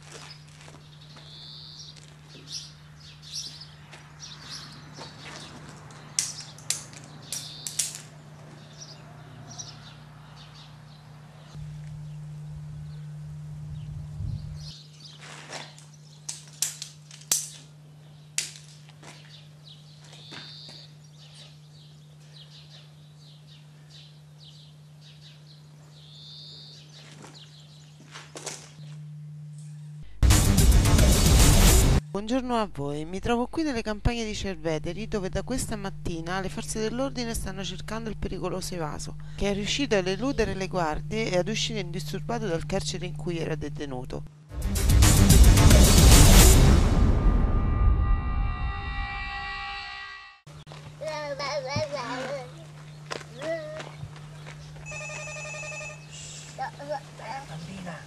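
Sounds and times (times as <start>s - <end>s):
steady low hum: 0.0s - 58.0s
small birds chirping: 0.2s - 15.2s, 19.1s - 28.1s, 50.6s - 54.8s, 56.0s - 58.0s.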